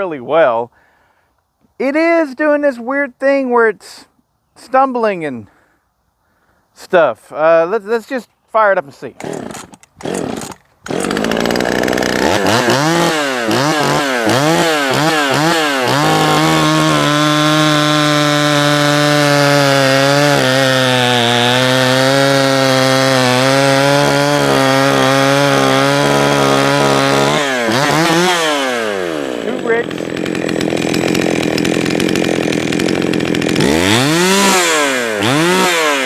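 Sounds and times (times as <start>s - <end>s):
chainsaw revving: 9.2s - 36.0s.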